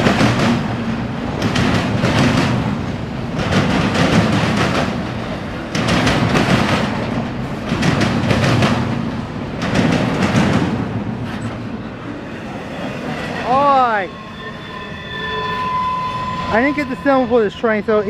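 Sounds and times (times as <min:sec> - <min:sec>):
wheels clacking over rail joints: 0:00.0 - 0:12.3
freight train rumbling past: 0:00.0 - 0:18.0.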